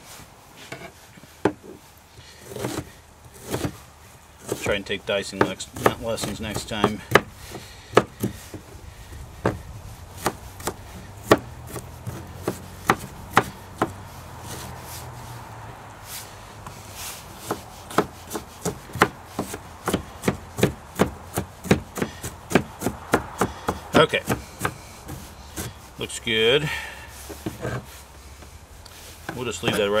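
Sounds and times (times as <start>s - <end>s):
knife chopping on cutting board: 5.4s - 8.6s, 10.2s - 14.7s, 17.4s - 25.7s.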